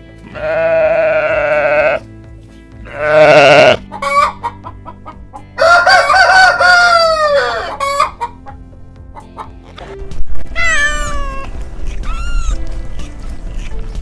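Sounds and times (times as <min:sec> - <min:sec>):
clucking: 0:03.8 - 0:05.6, 0:07.6 - 0:10.0
rooster crowing: 0:05.6 - 0:08.1.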